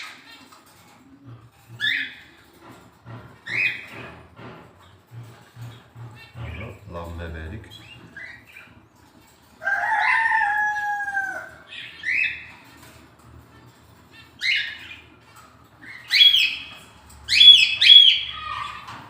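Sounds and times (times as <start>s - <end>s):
rooster crowing: 9.6s - 11.7s.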